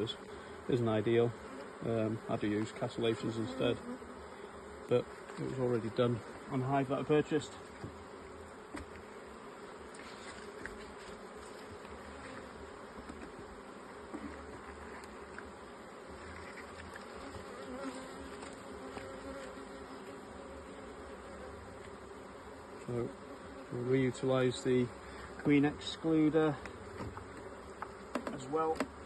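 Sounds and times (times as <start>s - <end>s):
bees buzzing: 0.0s - 29.0s.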